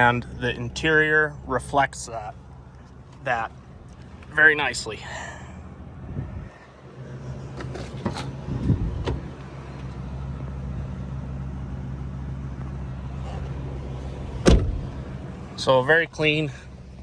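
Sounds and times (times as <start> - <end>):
truck engine idling: 0.0 - 17.0
loud thump: 14.2 - 15.2.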